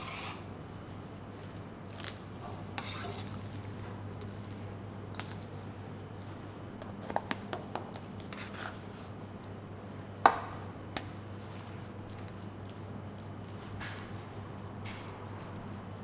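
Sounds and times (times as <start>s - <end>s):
knocks and clicks of food preparation: 6.8s - 8.3s, 10.2s - 11.2s, 13.7s - 15.6s.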